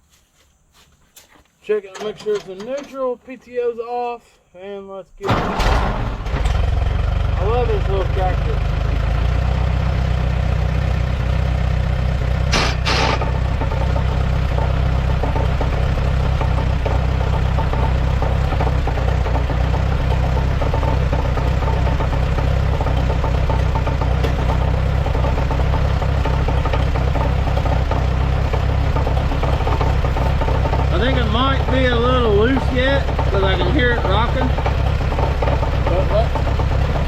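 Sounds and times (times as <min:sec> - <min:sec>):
tractor engine idling: 0:05.2 - 0:37.0
sharp knocks: 0:12.5 - 0:37.0.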